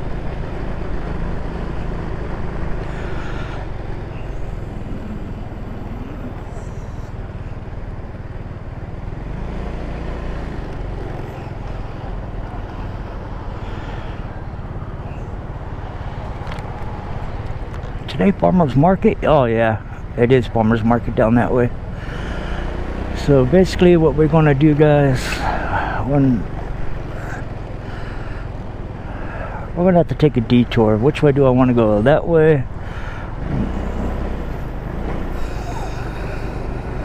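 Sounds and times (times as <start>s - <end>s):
scooter engine droning: 0.0s - 18.3s, 20.9s - 37.0s.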